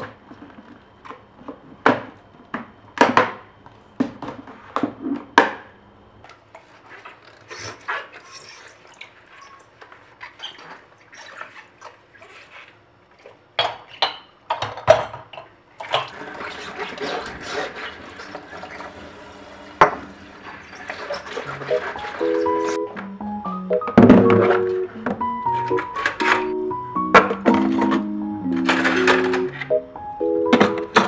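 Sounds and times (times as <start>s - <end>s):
running tap water: 15.8s - 22.5s
dishes and utensils clinking: 28.6s - 29.7s.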